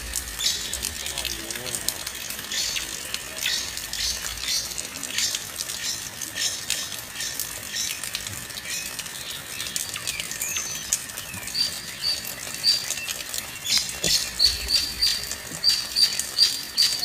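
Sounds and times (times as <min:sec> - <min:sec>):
small birds chirping: 0:00.3 - 0:01.3, 0:08.7 - 0:17.0.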